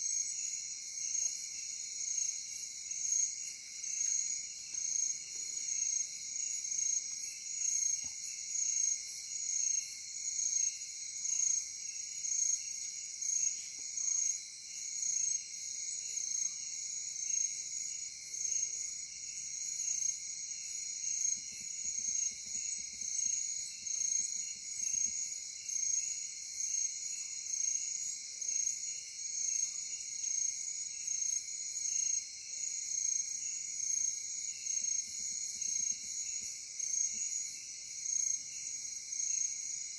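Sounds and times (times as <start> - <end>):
crickets trilling: 0.0 - 32.4
high pulsing insect chirping: 0.0 - 39.9.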